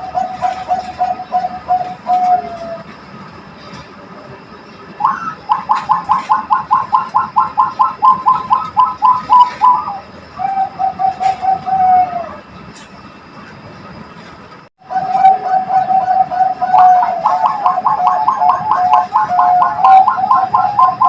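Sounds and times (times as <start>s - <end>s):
dove cooing: 0.0s - 3.0s, 5.0s - 12.4s, 14.8s - 21.0s.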